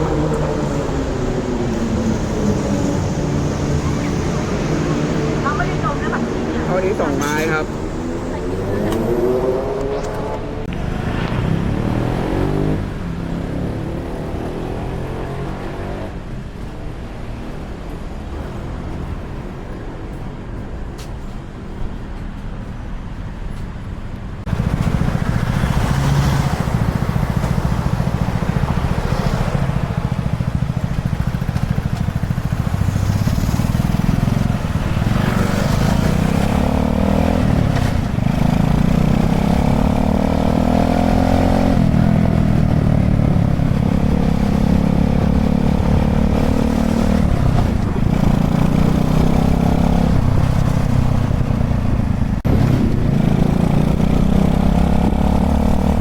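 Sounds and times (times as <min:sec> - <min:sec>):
minibike engine accelerating: 0:24.5 - 0:56.0.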